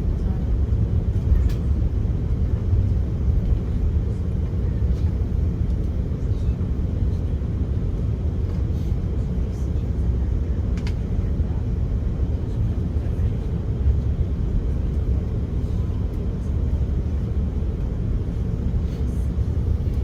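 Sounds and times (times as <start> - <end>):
airliner cabin rumble: 0.0 - 20.0
faint click: 10.8 - 11.0.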